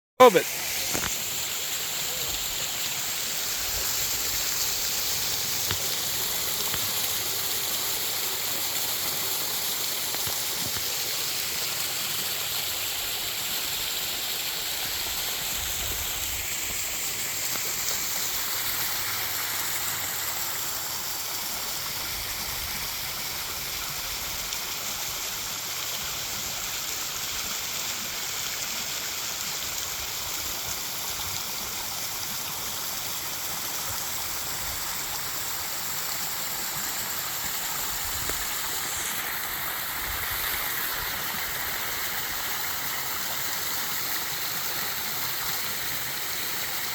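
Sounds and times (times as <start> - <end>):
waterfall rushing: 0.2 - 23.5, 34.0 - 46.9.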